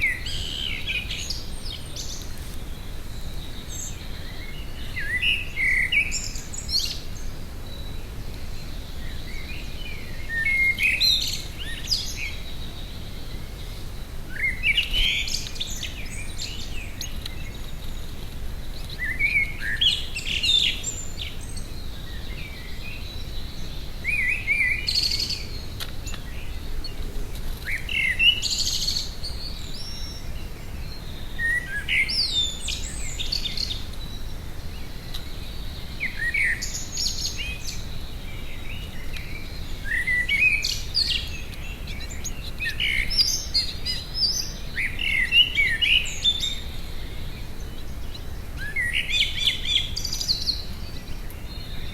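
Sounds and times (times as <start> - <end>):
faint low background noise: 0.0 - 51.9
songbird singing: 0.0 - 51.9.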